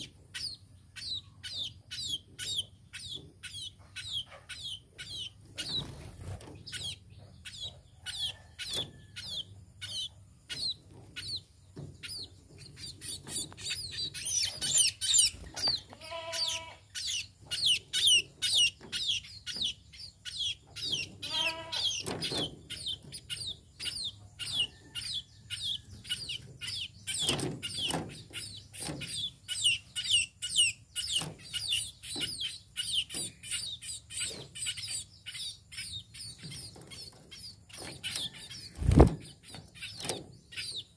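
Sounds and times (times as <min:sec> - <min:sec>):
birds chirping rapidly: 0:00.0 - 0:40.9.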